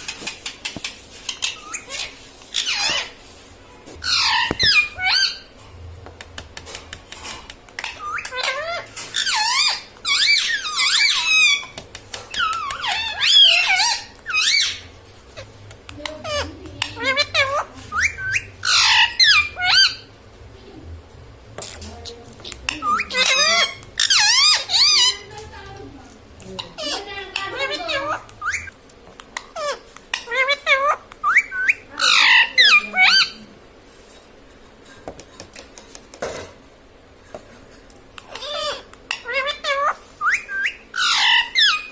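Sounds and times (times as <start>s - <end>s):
parrot squeaky warbling calls: 1.2s - 3.2s, 4.0s - 5.5s, 7.8s - 20.2s, 22.4s - 25.4s, 26.6s - 28.8s, 29.4s - 33.4s, 38.2s - 41.9s.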